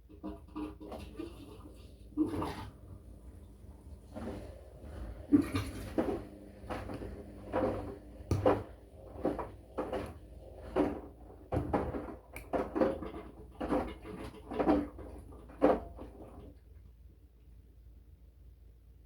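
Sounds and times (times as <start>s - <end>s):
washing machine motor hum: 0.1s - 16.5s
laundry thudding and sloshing: 3.8s - 16.1s.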